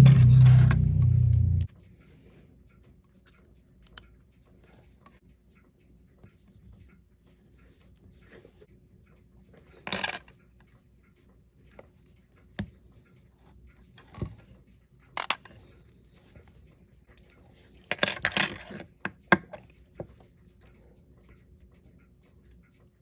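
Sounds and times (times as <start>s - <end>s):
small metal tool clicks and scrapes: 3.0s - 4.2s.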